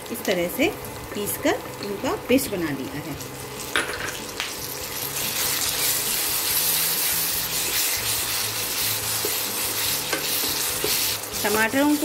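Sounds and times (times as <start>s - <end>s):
tomato puree sizzling in oil: 0.0s - 12.0s
wooden spatula scraping pan: 5.3s - 12.0s.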